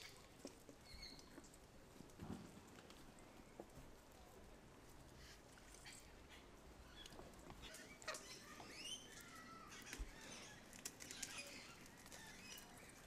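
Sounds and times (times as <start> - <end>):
birds chirping faintly: 0.0 - 1.6, 5.7 - 13.0.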